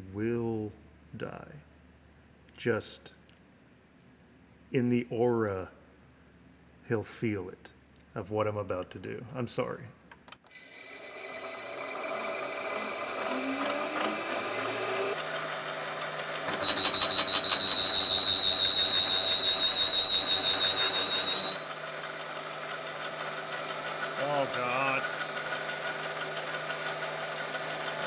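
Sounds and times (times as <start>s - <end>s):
machine tool motor humming: 10.5s - 15.2s, 16.4s - 21.8s
cutter chattering into metal: 16.5s - 21.6s.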